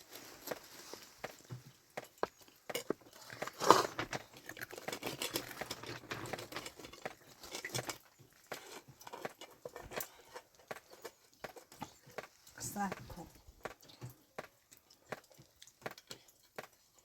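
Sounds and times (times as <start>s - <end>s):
rustling: 0.0s - 13.5s
scattered clicks and taps: 0.2s - 17.0s.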